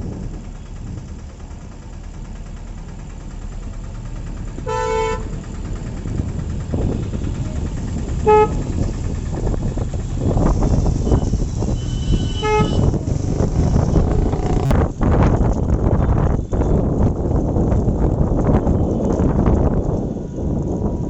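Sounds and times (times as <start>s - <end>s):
vehicle horn tooting: 4.7s - 5.2s, 8.2s - 8.6s, 11.8s - 14.7s.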